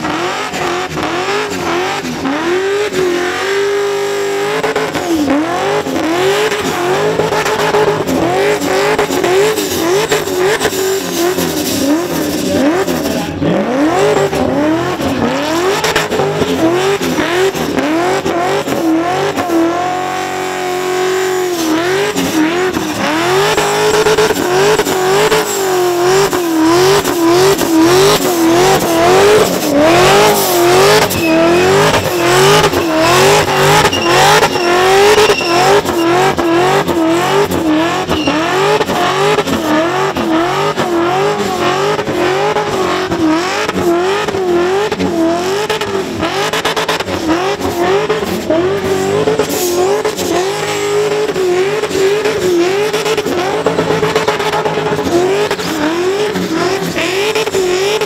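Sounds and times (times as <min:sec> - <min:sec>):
car engine revving hard: 0:00.0 - 0:58.0
spinning tyres: 0:00.0 - 0:58.0.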